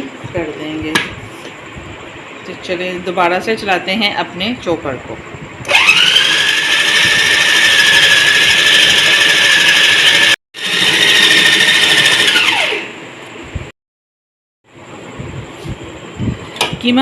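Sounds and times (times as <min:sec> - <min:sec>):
food chopper motor whining: 0:05.6 - 0:12.9.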